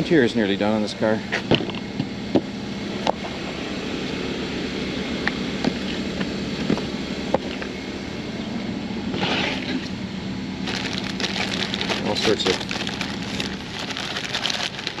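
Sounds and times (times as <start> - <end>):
generator engine drone: 0.0 - 15.0.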